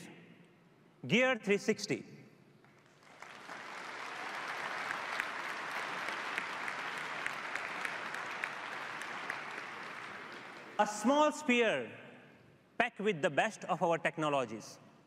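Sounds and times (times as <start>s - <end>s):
audience applauding: 2.8s - 10.8s.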